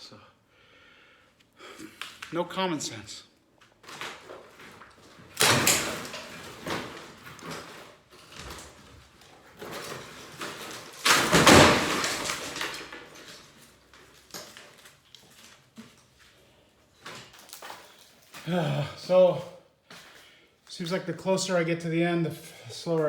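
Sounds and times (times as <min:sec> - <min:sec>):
debris scraping and clatter: 0:03.6 - 0:18.5
demolition crashes: 0:03.8 - 0:15.5.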